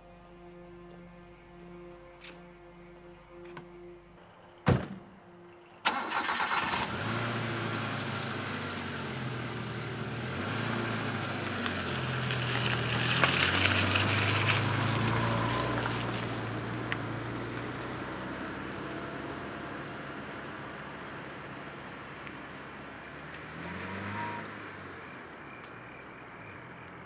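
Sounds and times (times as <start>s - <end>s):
sharp thump: 4.7s - 5.1s
car engine starting and running: 5.8s - 27.0s.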